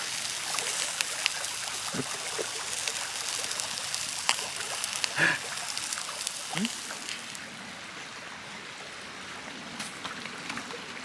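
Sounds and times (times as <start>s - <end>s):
campfire crackling and popping: 0.0s - 8.1s
steady hiss: 0.0s - 8.5s.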